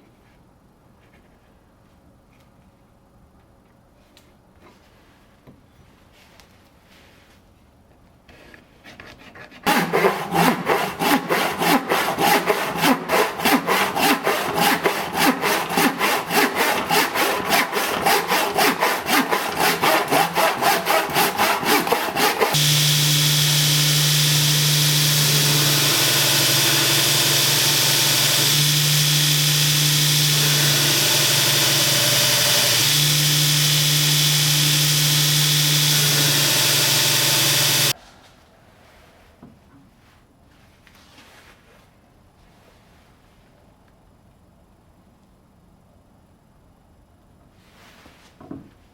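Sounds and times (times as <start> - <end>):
hand saw cutting wood: 8.8 - 38.0
electric power tool running: 9.7 - 37.9.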